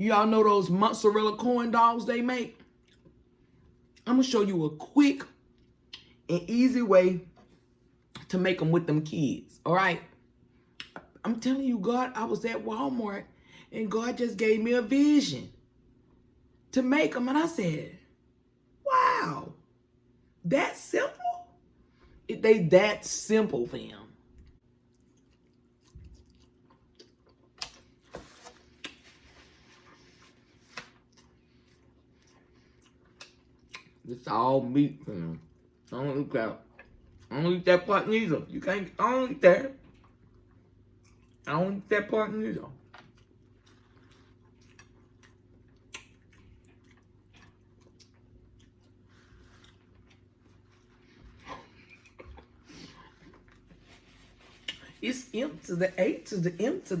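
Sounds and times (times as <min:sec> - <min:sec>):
person chewing: 0:24.8 - 0:30.4, 0:31.0 - 0:34.0, 0:39.8 - 0:41.5, 0:42.8 - 0:55.0.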